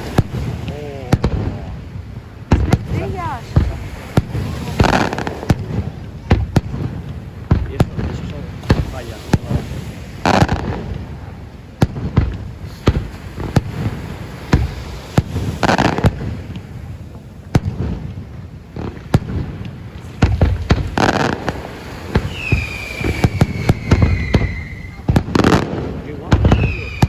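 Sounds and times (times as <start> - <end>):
whistling firework: 0.0 - 1.7, 2.5 - 16.9, 18.8 - 27.0
fireworks exploding: 0.0 - 27.0.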